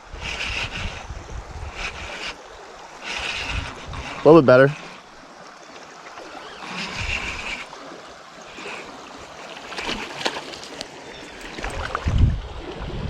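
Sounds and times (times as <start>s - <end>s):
creek water running: 0.0s - 13.0s.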